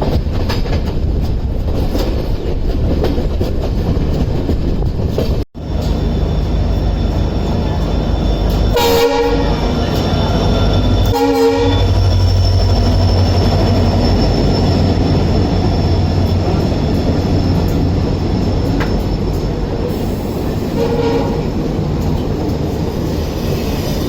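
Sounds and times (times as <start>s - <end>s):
train rumbling: 0.0s - 24.0s
train horn blasts: 8.5s - 12.1s, 20.7s - 21.6s.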